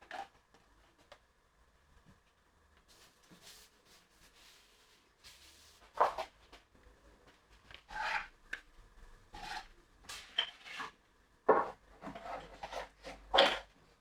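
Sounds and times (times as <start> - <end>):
rubbing and scraping on wood: 7.8 - 8.3, 9.3 - 13.6.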